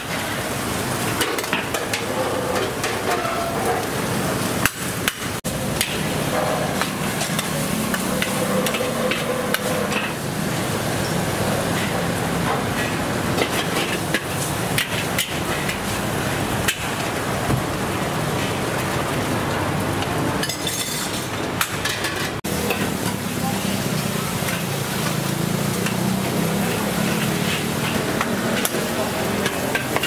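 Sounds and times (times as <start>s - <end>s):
food frying and sizzling: 0.0s - 30.0s
metal utensils clinking: 20.4s - 23.2s.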